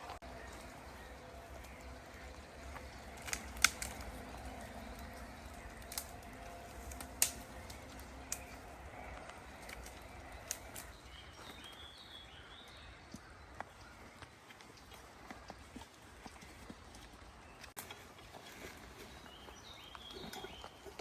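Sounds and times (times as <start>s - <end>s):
bird chirping: 0.0s - 17.8s, 19.0s - 21.0s
sharp clicks or snaps: 3.2s - 4.2s.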